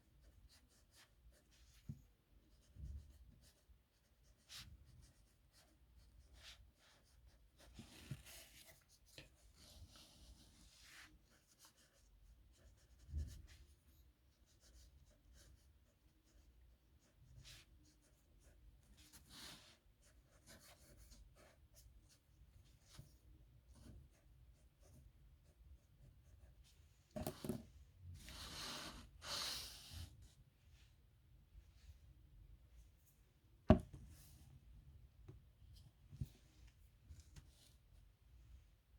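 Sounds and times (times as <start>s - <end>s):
pen scratching on paper: 16.3s - 21.8s.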